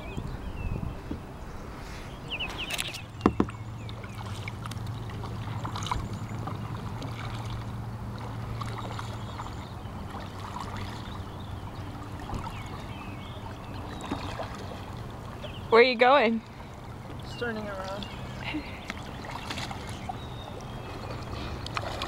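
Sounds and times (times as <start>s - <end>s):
paddle splashing in water: 1.0s - 22.0s
paddle knocking on kayak: 3.2s - 4.4s.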